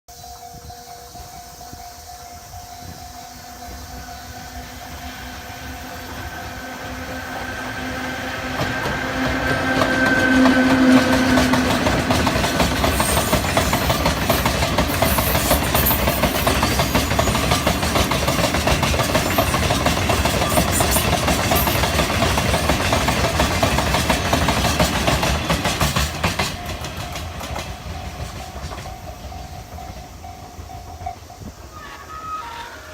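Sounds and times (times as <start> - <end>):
electric locomotive hum: 0.1 - 32.9
train wheels clattering over rail joints: 8.4 - 31.4.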